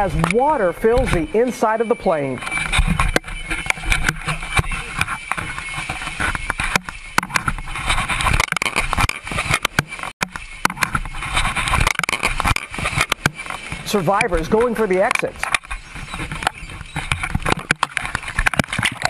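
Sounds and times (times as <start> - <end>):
sharp knocks and clatters: 2.4 - 13.9, 15.0 - 19.0
scattered voices: 13.8 - 15.5.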